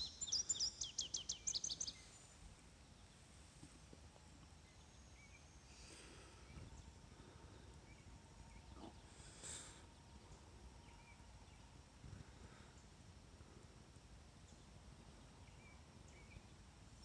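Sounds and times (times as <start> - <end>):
faint bird chirps: 0.0 - 3.2, 4.2 - 11.9.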